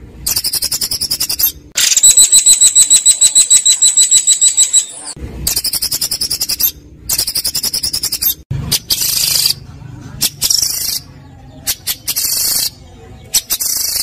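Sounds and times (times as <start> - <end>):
songbird sharp ringing notes: 0.3 - 6.6.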